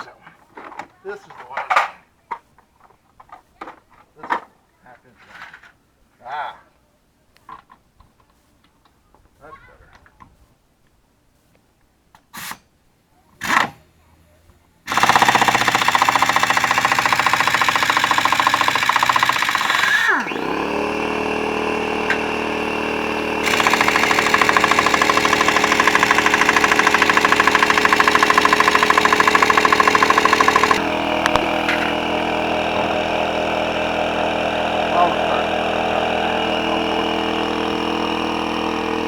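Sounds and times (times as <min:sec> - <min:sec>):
air impact wrench hammering: 0:13.4 - 0:13.8, 0:14.9 - 0:39.0
air compressor running: 0:13.4 - 0:13.9, 0:14.9 - 0:39.0.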